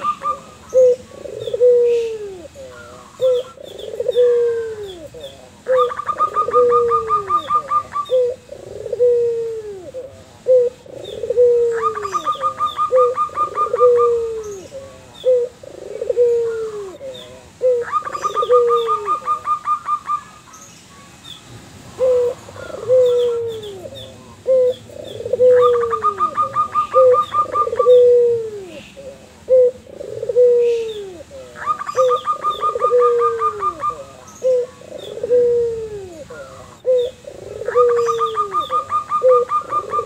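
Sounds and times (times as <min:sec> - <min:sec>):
doves cooing: 0:00.0 - 0:21.0, 0:21.8 - 0:40.0
fast trilled dove call: 0:05.7 - 0:09.8, 0:11.3 - 0:14.7, 0:17.6 - 0:20.4, 0:22.0 - 0:28.8, 0:29.5 - 0:40.0.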